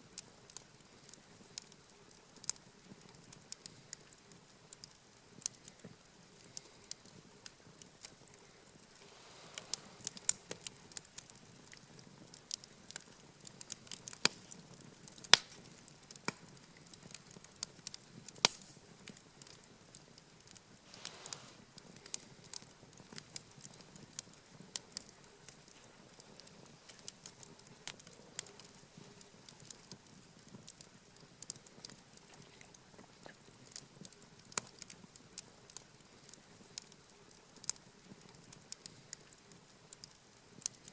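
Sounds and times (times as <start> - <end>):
campfire crackling and popping: 0.0 - 40.9
rush of flame: 8.6 - 11.4, 20.8 - 22.6.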